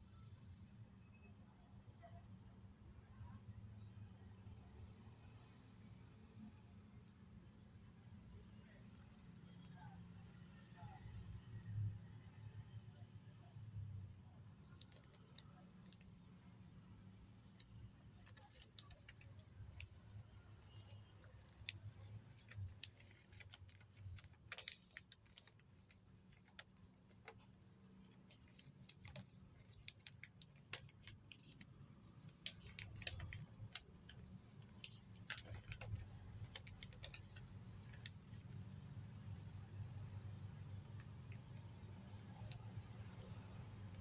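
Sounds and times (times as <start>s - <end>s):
paper crinkling and folding: 14.6s - 16.3s, 17.4s - 44.0s.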